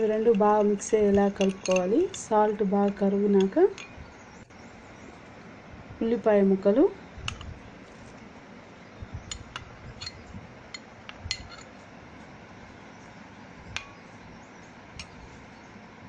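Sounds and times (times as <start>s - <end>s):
metal spoon clinking on bowl: 0.2s - 2.3s.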